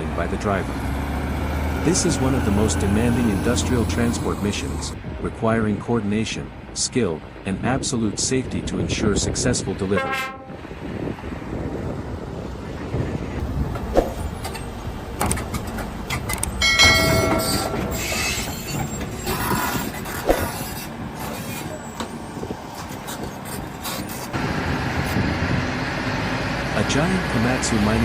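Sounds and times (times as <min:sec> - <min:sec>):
heavy vehicle noise: 0:00.0 - 0:09.8, 0:10.4 - 0:28.0
metallic clanks and knocks: 0:14.4 - 0:20.6
high squeal: 0:16.6 - 0:24.3.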